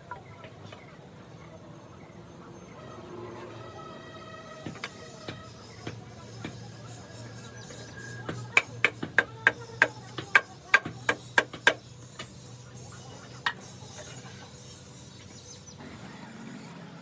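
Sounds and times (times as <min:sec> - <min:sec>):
hammer striking metal: 0:04.6 - 0:12.4.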